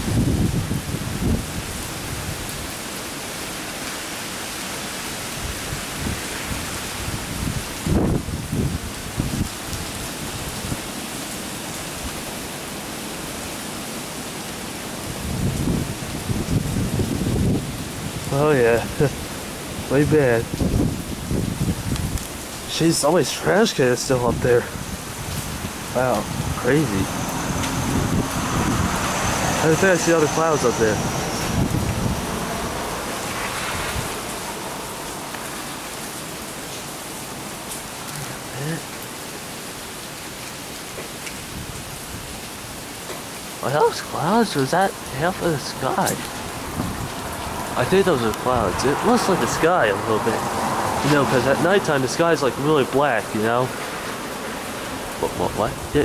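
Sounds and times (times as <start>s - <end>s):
steady rain falling: 0.0s - 56.0s
low thunder rumble: 24.3s - 36.5s.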